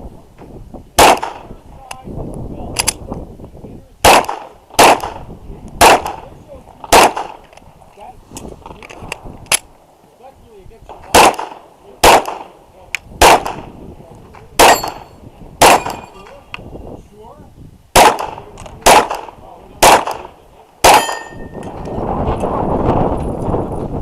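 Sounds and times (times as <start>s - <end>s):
pistol shots: 1.0s - 1.5s, 4.0s - 5.2s, 5.8s - 6.2s, 6.8s - 7.5s, 11.0s - 12.6s, 13.2s - 13.7s, 14.6s - 16.1s, 17.9s - 21.6s
faint metallic ringing: 21.0s - 21.6s.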